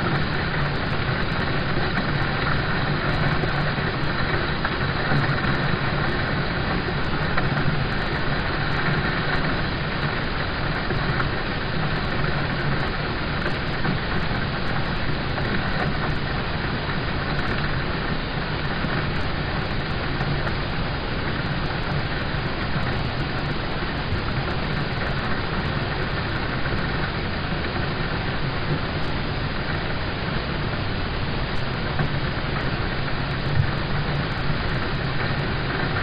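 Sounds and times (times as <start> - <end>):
rain drumming on car roof: 0.1 - 27.0.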